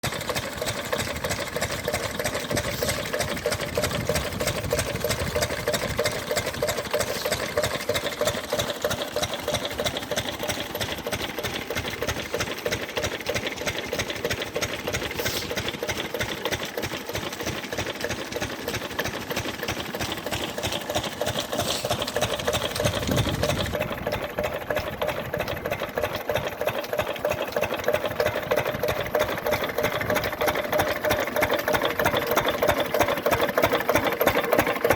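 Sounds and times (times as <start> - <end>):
fast mechanical clatter: 0.0 - 34.9
engines running: 19.6 - 34.9.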